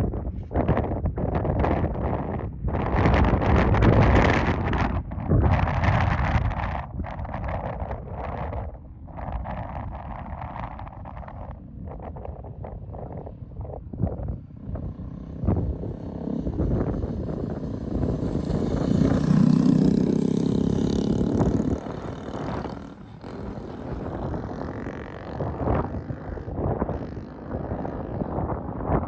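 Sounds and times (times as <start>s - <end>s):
wind buffeting microphone: 0.0s - 29.0s
motorcycle passing by: 14.2s - 29.0s.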